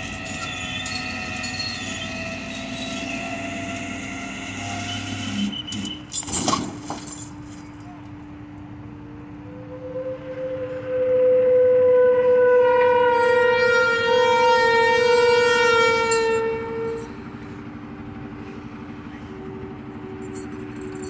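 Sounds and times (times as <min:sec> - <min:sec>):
loud horn blast: 0:09.3 - 0:17.4.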